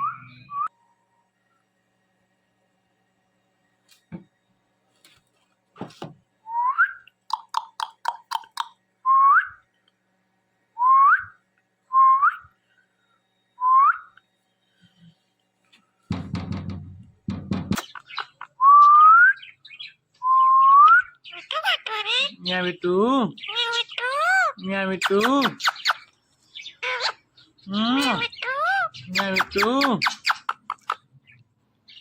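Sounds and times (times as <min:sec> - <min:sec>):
dull thumps: 0:16.1 - 0:17.9.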